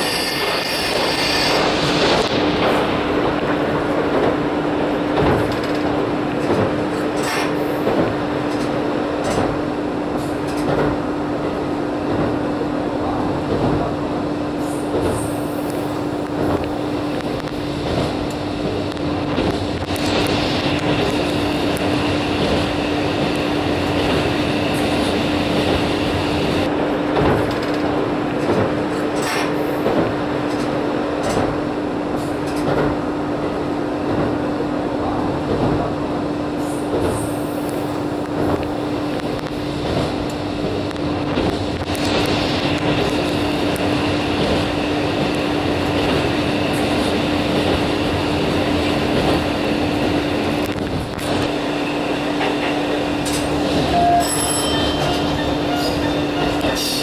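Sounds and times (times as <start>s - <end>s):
railcar engine hum: 0.0s - 57.0s
wheels clacking over rail joints: 5.1s - 9.6s.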